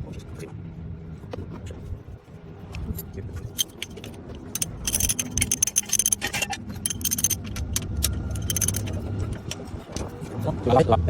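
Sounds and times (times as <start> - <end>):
metal tools clinking: 2.8 - 10.1.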